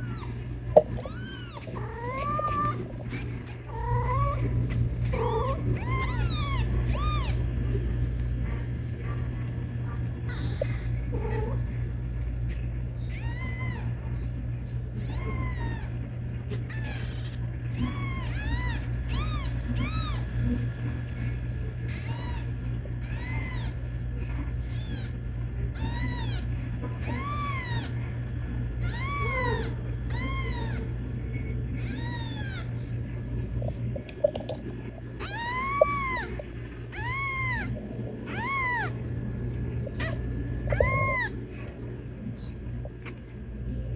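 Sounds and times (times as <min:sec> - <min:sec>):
kittens meowing: 0:00.0 - 0:07.4, 0:10.3 - 0:11.6, 0:12.5 - 0:14.0, 0:15.0 - 0:20.4, 0:21.9 - 0:24.0, 0:24.6 - 0:28.0, 0:28.8 - 0:30.9, 0:31.8 - 0:33.0, 0:34.1 - 0:39.1, 0:39.7 - 0:41.7
steady low hum: 0:00.0 - 0:43.9.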